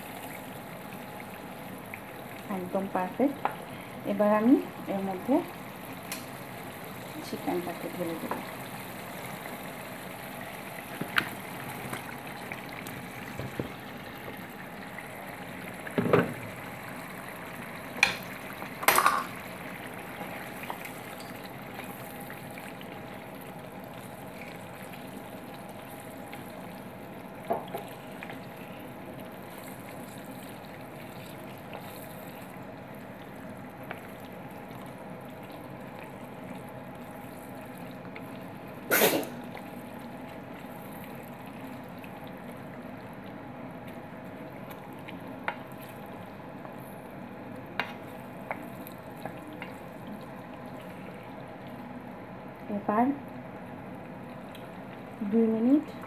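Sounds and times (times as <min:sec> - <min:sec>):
chicken sizzling in a pan: 0:00.0 - 0:41.8.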